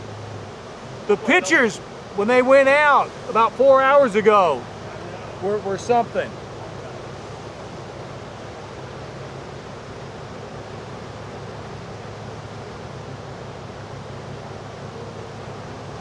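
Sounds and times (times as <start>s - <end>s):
surf rushing: 0.0s - 16.0s
wind: 0.0s - 16.0s.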